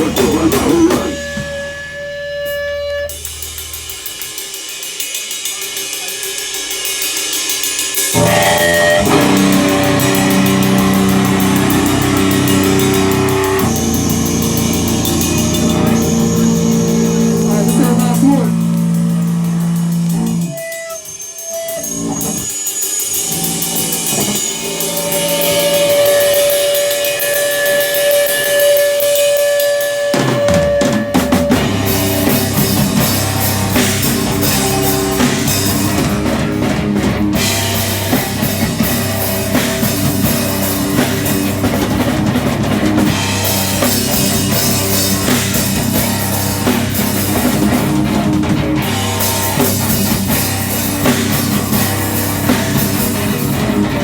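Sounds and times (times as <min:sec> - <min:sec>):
held guitar note: 0:00.0 - 0:04.3, 0:08.2 - 0:21.0
cymbals: 0:00.0 - 0:54.0
live rock band playing: 0:00.0 - 0:54.0.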